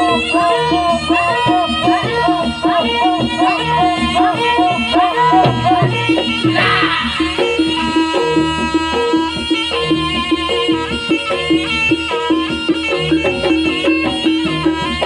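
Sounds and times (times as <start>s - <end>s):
hand drum beats: 0.0s - 15.0s
ornamented melody: 0.0s - 15.0s.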